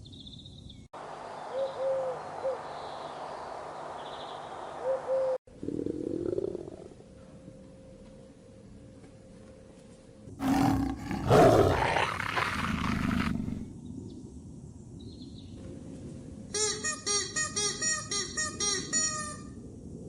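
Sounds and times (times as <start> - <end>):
large animal roaring: 5.6 - 7.0, 10.4 - 13.7.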